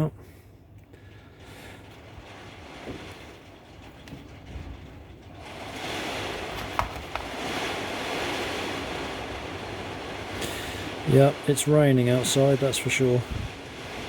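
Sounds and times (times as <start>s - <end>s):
rain falling: 0.9s - 14.0s.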